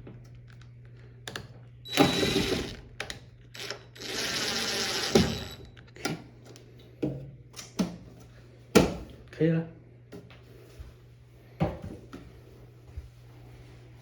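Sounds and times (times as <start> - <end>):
electric screwdriver running: 1.9 - 5.8.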